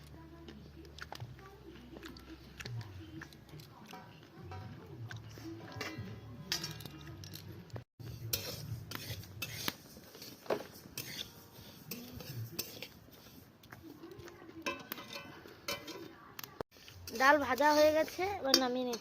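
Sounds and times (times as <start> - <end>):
metal spatula scraping metal pan: 8.0 - 13.4, 14.6 - 16.1, 16.7 - 19.0.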